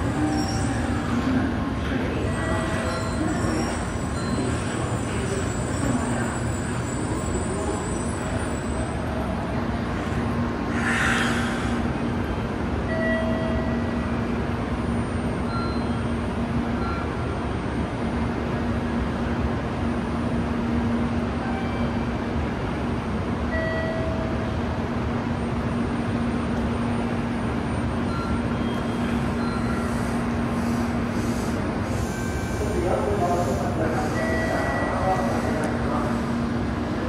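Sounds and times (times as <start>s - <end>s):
train rushing noise: 0.0s - 37.0s.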